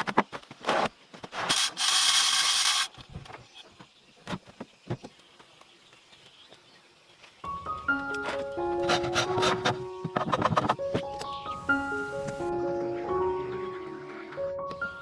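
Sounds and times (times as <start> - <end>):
blade rasping across wood: 8.8 - 9.8.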